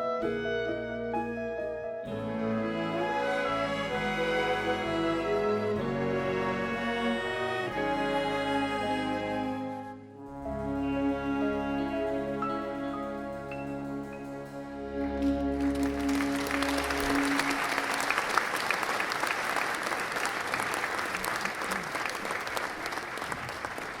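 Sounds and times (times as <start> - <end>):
band and orchestra final chord: 2.0 - 18.4
audience applause: 15.0 - 24.0.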